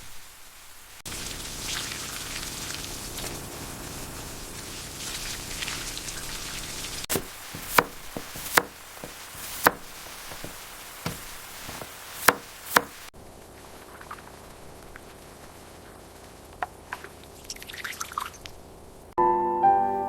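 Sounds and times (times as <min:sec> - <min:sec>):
steady rain hiss: 0:00.0 - 0:19.2
knife chopping on cutting board: 0:07.1 - 0:13.0.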